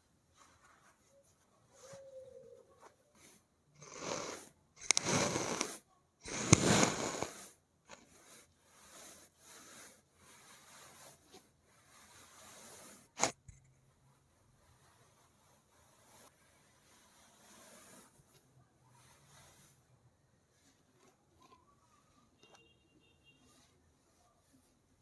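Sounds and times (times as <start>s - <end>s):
fingernails scratching a surface: 3.2s - 13.4s, 14.9s - 18.4s.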